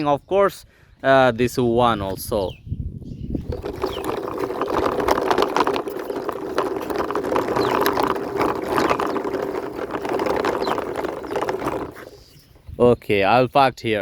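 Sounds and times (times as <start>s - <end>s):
toy wheels whirring and rattling: 3.4s - 12.5s.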